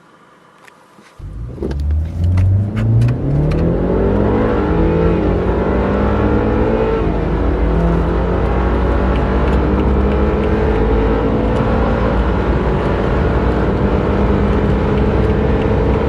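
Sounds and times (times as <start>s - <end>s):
car engine accelerating: 1.2s - 16.0s.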